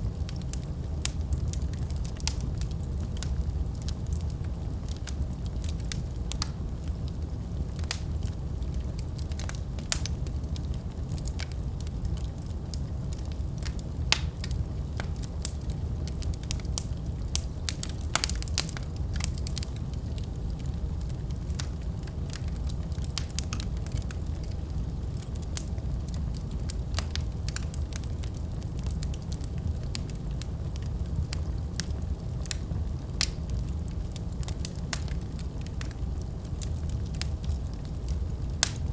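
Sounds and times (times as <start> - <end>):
fire crackling and popping: 0.0 - 38.9
low rumble of flames: 0.0 - 38.9.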